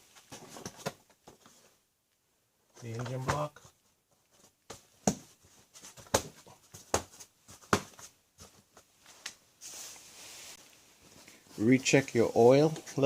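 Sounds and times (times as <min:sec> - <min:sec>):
soft rustle: 0:02.8 - 0:13.0.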